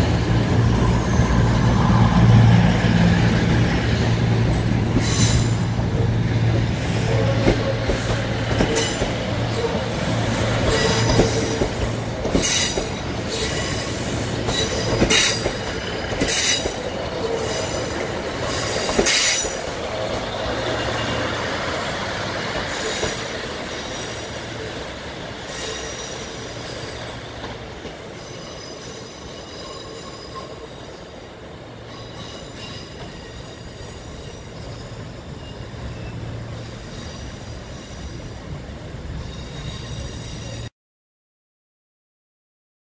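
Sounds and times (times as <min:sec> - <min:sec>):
train wheels squealing: 0:00.3 - 0:01.9, 0:05.0 - 0:06.1, 0:10.6 - 0:21.5, 0:22.6 - 0:40.7.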